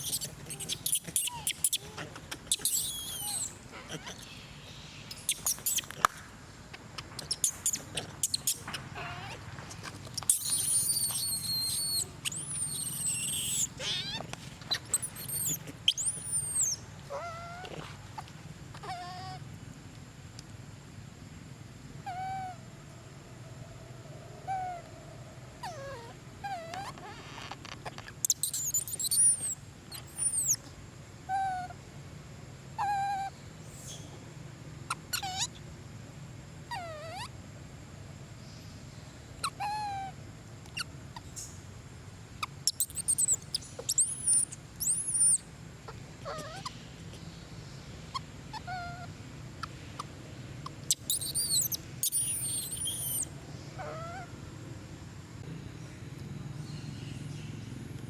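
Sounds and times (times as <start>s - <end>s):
monkey cooing: 0.0s - 4.4s, 7.0s - 9.4s, 10.2s - 17.9s, 28.3s - 30.6s, 42.6s - 46.7s, 50.8s - 54.3s
monkeys squealing: 0.0s - 4.4s, 5.1s - 6.0s, 7.1s - 9.4s, 10.2s - 17.8s, 28.2s - 30.6s, 35.1s - 35.6s, 36.7s - 37.3s, 39.4s - 41.3s, 42.4s - 46.8s, 48.1s - 54.3s.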